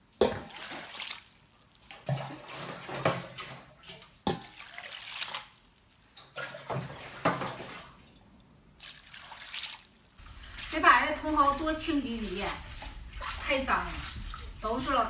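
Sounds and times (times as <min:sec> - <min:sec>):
water splashing in a basin: 0:00.0 - 0:15.0.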